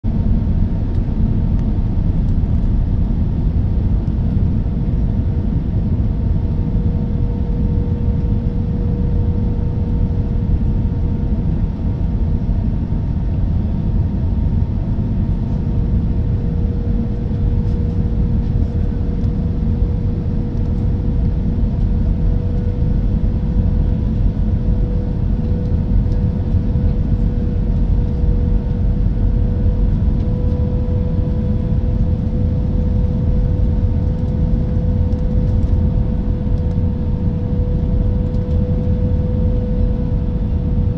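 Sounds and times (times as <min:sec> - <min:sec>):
airflow rumble in aircraft cabin: 0:00.0 - 0:40.9
mid-pitched engine hum: 0:00.0 - 0:40.9.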